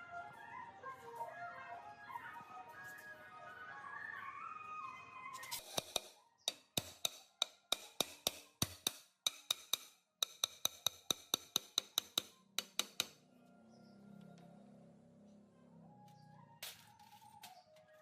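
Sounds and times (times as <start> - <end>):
music: 0.0 - 5.6.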